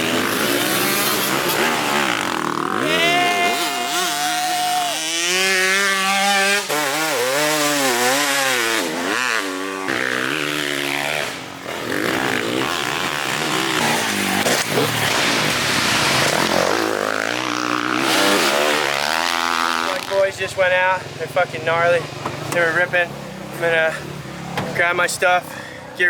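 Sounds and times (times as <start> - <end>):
pit bike engines revving: 0.0 - 26.0.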